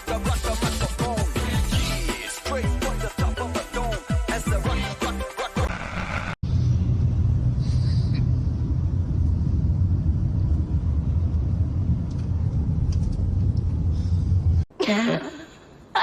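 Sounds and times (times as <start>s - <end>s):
music: 0.0s - 5.7s
steady low rumble: 6.4s - 14.7s.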